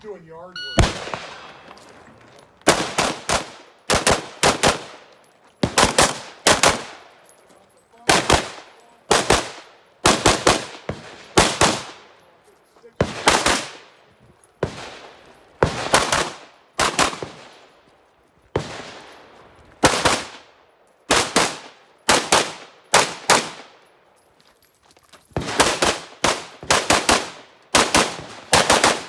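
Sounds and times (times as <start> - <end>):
rifle shots with ringing echo: 0.6 - 7.2, 8.0 - 12.3, 13.0 - 14.0, 14.6 - 17.7, 19.8 - 23.8, 25.4 - 29.0.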